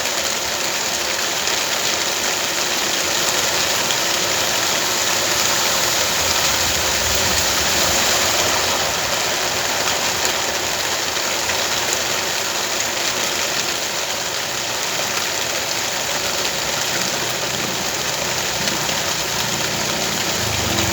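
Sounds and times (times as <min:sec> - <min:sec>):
rain falling: 0:00.0 - 0:20.9
low engine running: 0:16.1 - 0:20.9.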